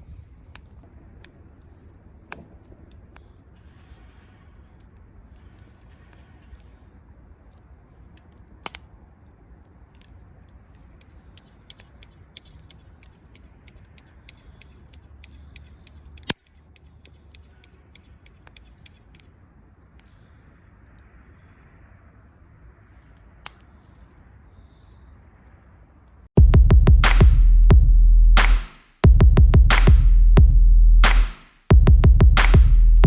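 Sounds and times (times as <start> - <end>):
loud sharp fire snaps: 0.0 - 25.2, 27.0 - 27.7, 28.4 - 29.1, 29.7 - 30.4, 31.0 - 31.7, 32.4 - 33.0
low steady rumble: 26.4 - 33.0.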